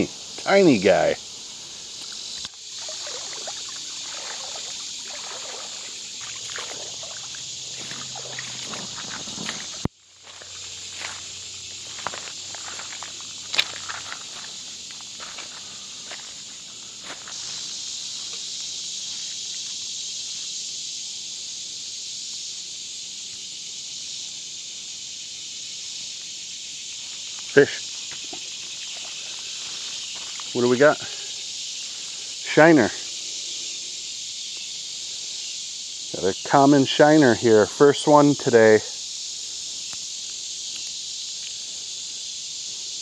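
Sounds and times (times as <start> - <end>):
summer insects buzzing: 0.0 - 43.0
creek water trickling and splashing: 2.0 - 16.2, 28.0 - 30.9.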